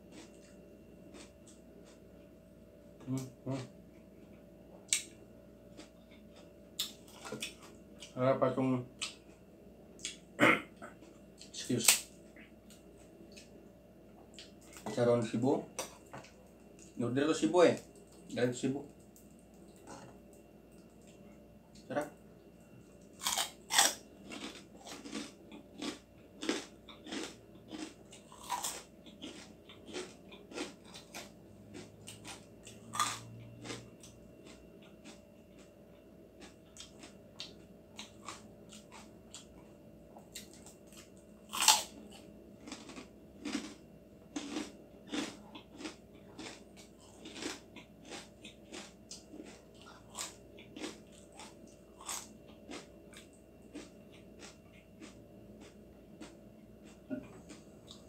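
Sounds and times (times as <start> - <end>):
quiet chewing: 0.0 - 2.3, 3.0 - 8.2, 12.3 - 13.6, 14.2 - 15.0, 17.8 - 58.0
pork rinds crunching: 23.0 - 35.7, 36.4 - 39.6, 40.3 - 58.0.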